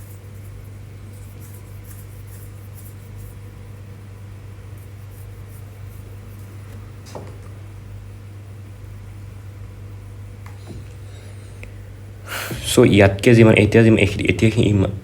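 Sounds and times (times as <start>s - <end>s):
faint scratching strokes: 0.0s - 3.9s, 4.6s - 7.0s
low room hum: 0.0s - 15.0s.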